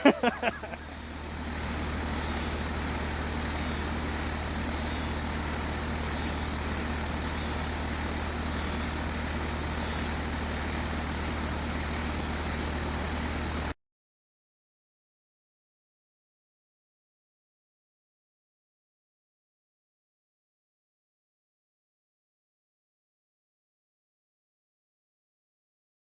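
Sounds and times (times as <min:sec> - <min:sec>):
low mechanical hum: 0:00.0 - 0:13.8.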